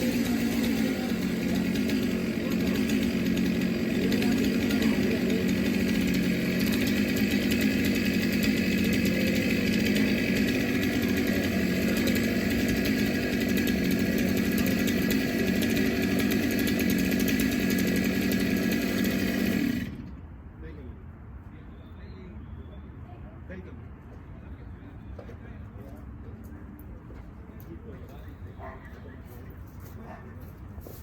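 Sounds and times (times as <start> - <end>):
chainsaw running at high speed: 0.0 - 20.1.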